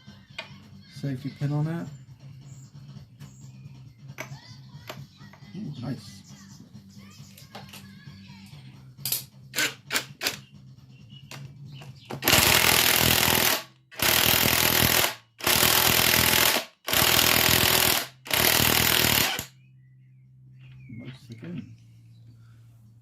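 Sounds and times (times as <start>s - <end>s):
impact wrench hammering: 12.1s - 19.5s.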